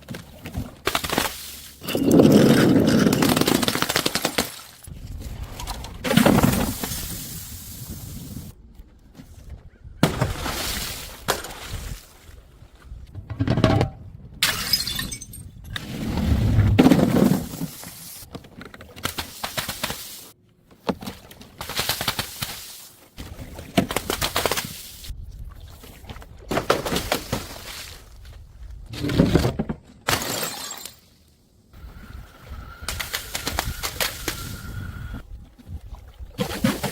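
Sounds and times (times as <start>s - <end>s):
glass bottles smashing: 14.4s - 15.5s, 30.1s - 31.0s.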